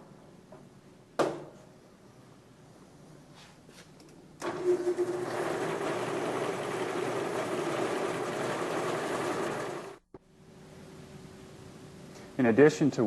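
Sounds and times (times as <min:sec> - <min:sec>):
bandsaw running: 0:04.5 - 0:10.0.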